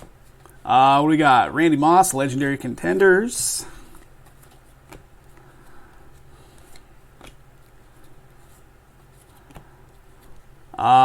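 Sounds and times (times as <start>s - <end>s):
low steady hum: 0.0s - 11.0s
cards clicking and sliding: 3.8s - 10.6s.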